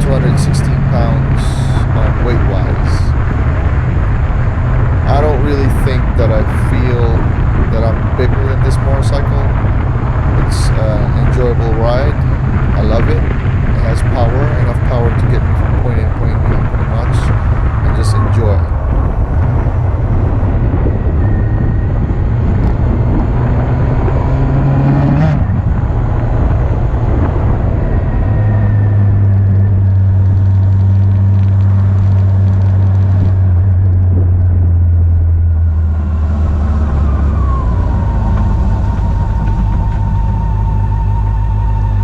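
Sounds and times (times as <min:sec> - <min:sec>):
motorcycle engine running: 0:00.0 - 0:24.4.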